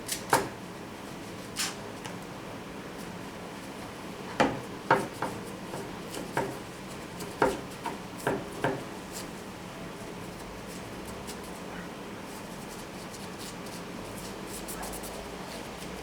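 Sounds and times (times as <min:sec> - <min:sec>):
knocks and taps on wood: 0:04.4 - 0:06.6, 0:07.4 - 0:08.9.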